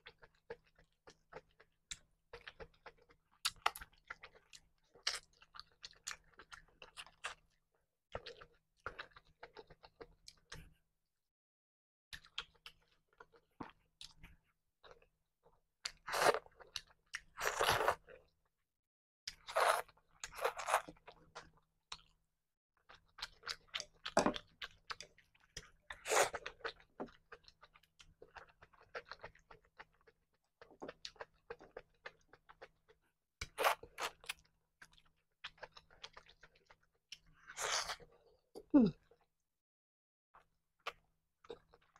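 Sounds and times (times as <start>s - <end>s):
chewing with wet mouth clicks: 22.9s - 37.4s.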